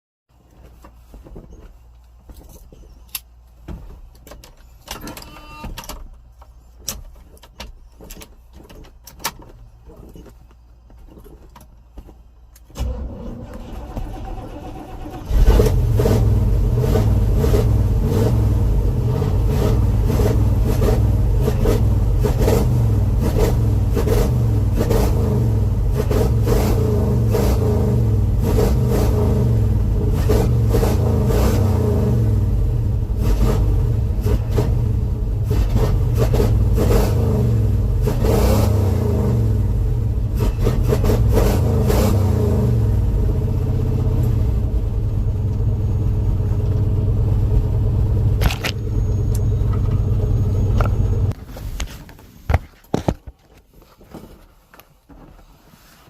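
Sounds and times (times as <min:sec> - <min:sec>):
car engine starting and idling: 0:12.6 - 0:51.4.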